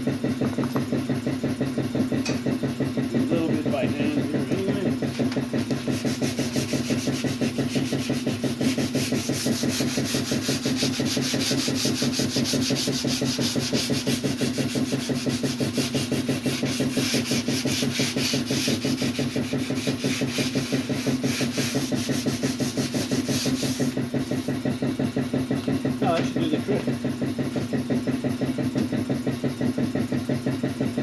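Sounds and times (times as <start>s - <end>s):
steady low hum: 0.0s - 29.6s
sandpaper rubbing: 5.6s - 24.0s.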